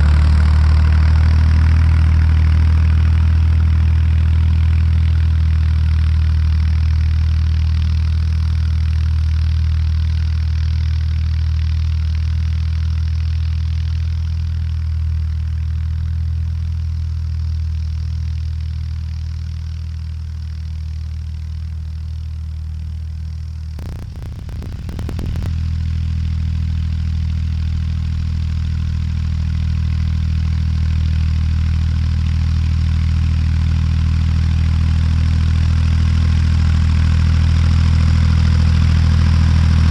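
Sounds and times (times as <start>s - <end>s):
brief crackle: 23.8s - 25.5s
tractor engine droning: 23.8s - 25.5s.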